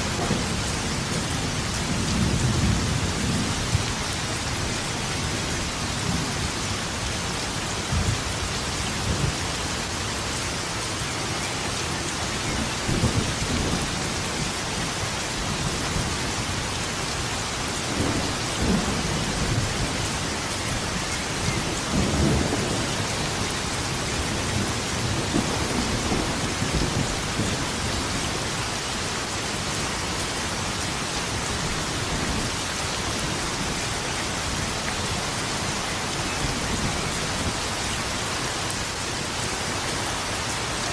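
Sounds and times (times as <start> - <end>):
thunder rumbling: 0.0 - 7.0, 17.9 - 28.6
steady rain pouring: 0.0 - 40.9.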